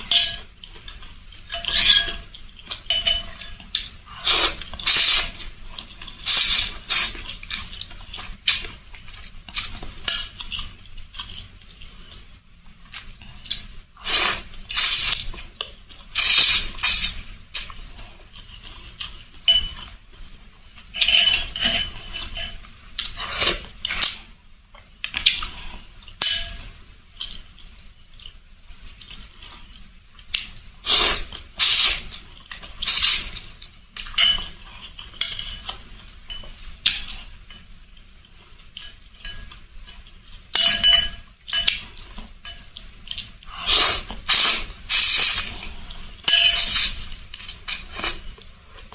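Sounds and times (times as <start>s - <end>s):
spoon clinking against bowl: 2.9s - 3.6s, 40.6s - 42.7s
slurping noodles: 43.5s - 46.0s.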